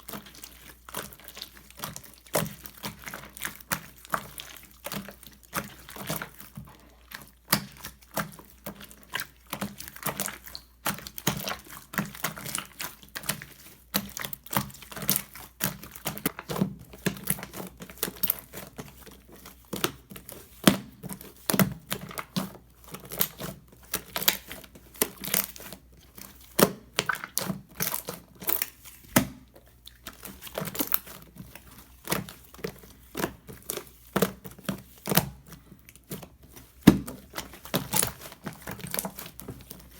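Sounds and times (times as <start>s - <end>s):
slime crackling and popping: 32.1s - 39.9s.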